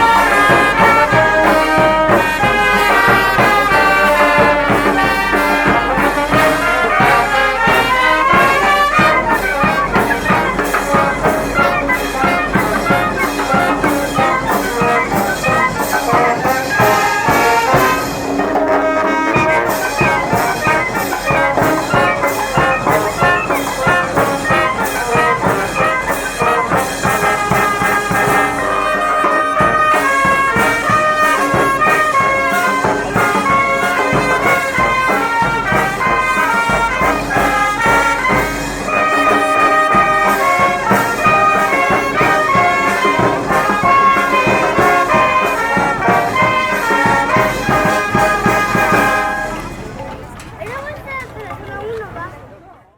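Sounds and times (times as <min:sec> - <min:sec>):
brass band playing: 0:00.0 - 0:50.4
percussion beat: 0:00.0 - 0:52.2.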